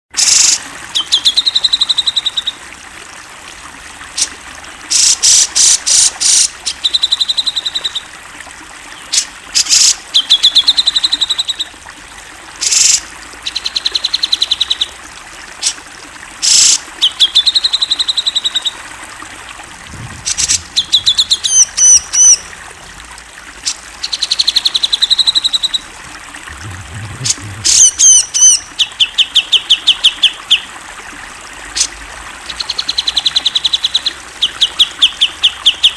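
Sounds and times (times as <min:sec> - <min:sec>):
harsh noisy bird calls: 0:04.2 - 0:08.2, 0:20.0 - 0:22.7, 0:26.5 - 0:30.4
high up-swept bird notes: 0:26.5 - 0:28.7.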